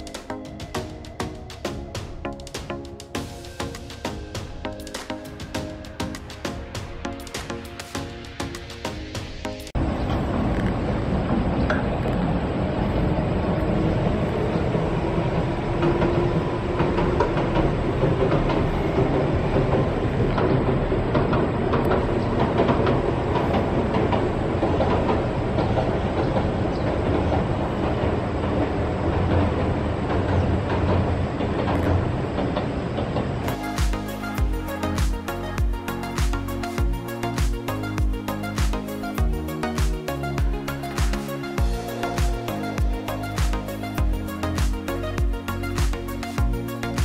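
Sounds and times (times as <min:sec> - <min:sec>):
train rolling over a bridge: 0:00.0 - 0:47.0
wheel clicks over rail joints: 0:15.2 - 0:36.3.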